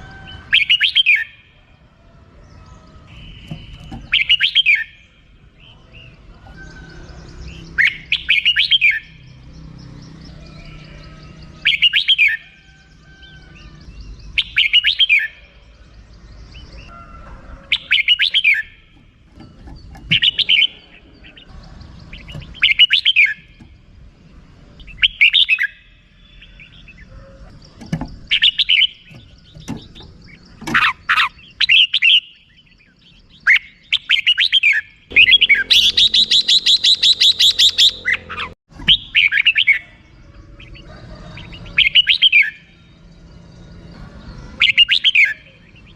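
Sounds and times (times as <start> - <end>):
bird chattering call: 2.5 - 9.4, 17.6 - 23.8, 24.8 - 42.6.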